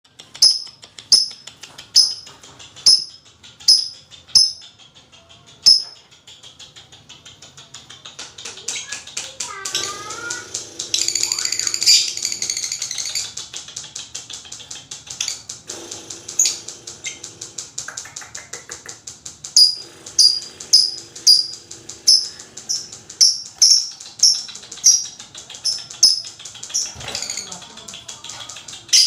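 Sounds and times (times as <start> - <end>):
lovebird chattering: 0.1 - 29.0
sharp high chirps: 2.0 - 2.3, 5.7 - 6.0, 19.6 - 25.0.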